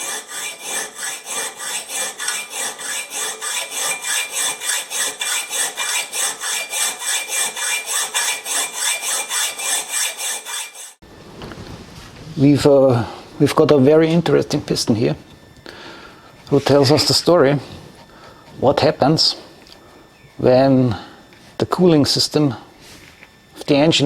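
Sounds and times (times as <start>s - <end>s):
rhythmic rasping strokes: 0.0s - 11.0s.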